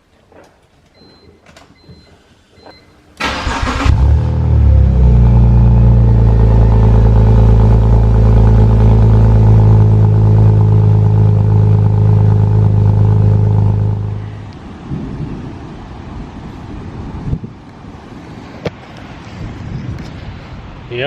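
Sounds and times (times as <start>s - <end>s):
car engine idling high: 3.2s - 14.6s.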